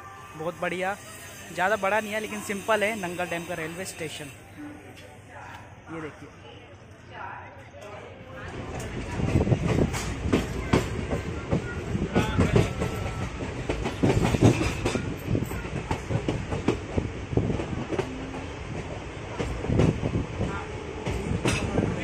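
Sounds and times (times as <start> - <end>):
train coach rumble: 8.5 - 22.0
train wheels clacking over rail joints: 8.8 - 20.0.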